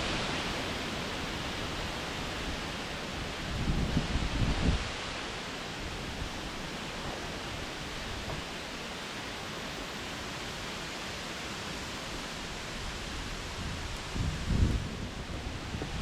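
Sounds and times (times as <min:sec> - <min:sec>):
wind rushing through trees: 0:00.0 - 0:16.0.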